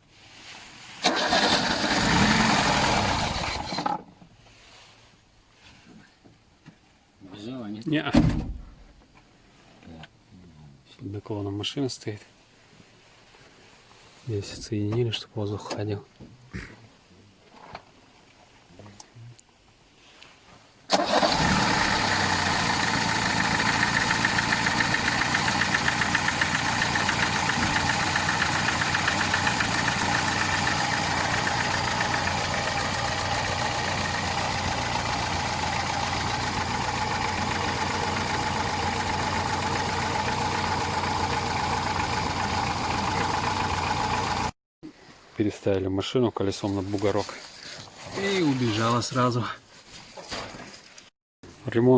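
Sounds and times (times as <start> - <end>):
car engine starting and idling: 1.0 - 4.0, 20.9 - 44.6.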